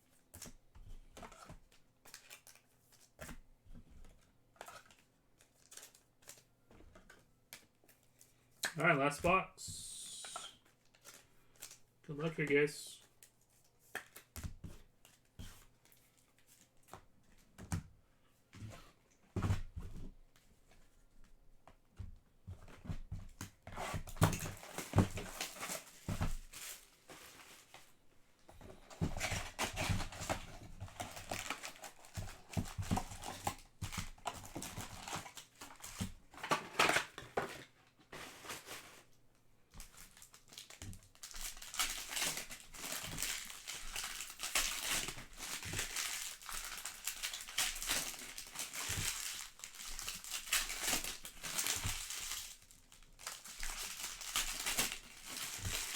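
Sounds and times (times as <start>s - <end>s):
foil wrappers tearing and crinkling: 23.9s - 27.7s, 28.9s - 37.2s, 39.8s - 55.9s.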